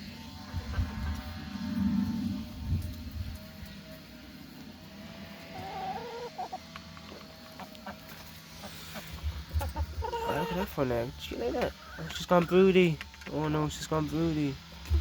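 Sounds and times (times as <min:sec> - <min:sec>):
hens clucking: 0:04.4 - 0:13.8.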